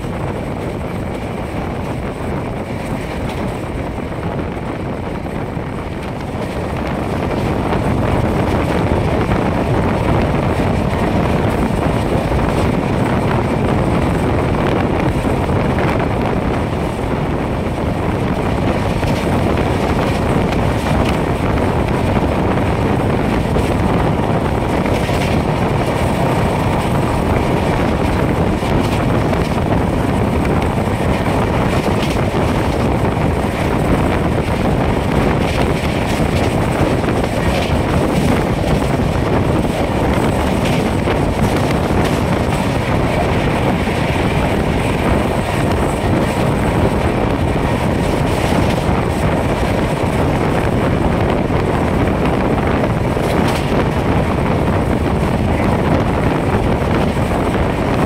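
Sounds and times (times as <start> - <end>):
train coaches running: 0.0 - 58.0
wind buffeting microphone: 0.0 - 58.0.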